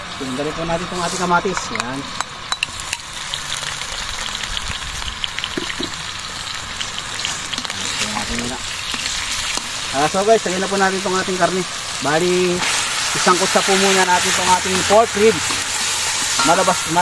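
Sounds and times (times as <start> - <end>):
onions sizzling in a wok: 0.0 - 17.0
wooden spatula scraping: 12.6 - 17.0.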